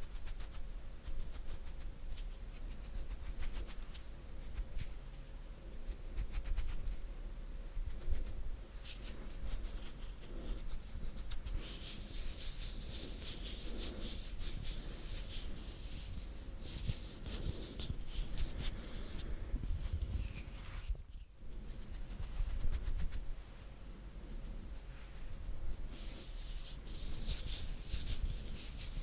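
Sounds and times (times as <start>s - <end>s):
hands rubbing together: 8.8s - 23.3s, 24.3s - 29.0s.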